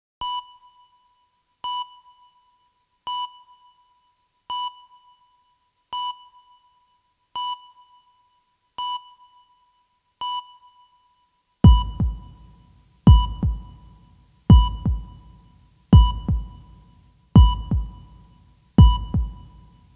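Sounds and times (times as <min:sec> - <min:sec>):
short electronic beep: 0:00.2 - 0:02.5.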